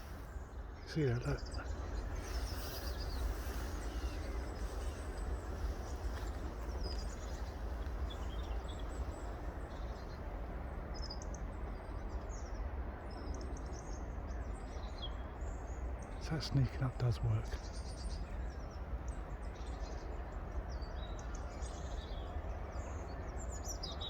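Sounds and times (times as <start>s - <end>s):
wind rumble on microphone: 0.0s - 13.7s
small birds chirping: 0.0s - 24.0s.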